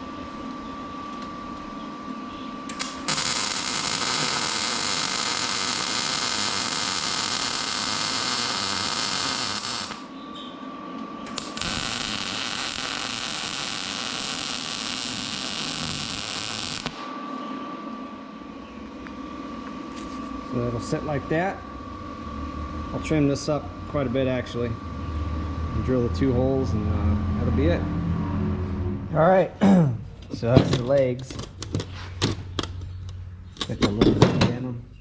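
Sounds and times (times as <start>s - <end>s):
electric welding arc: 2.7s - 10.1s, 11.3s - 17.1s.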